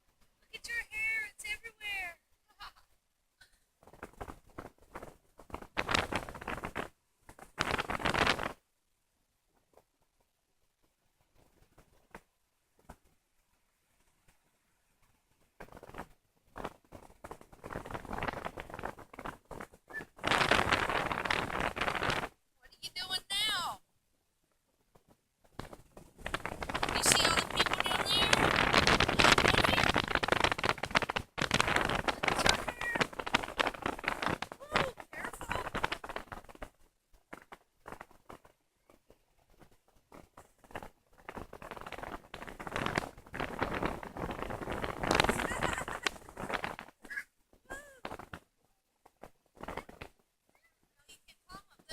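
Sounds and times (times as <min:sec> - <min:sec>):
wind buffeting microphone: 0:26.2 - 0:35.9.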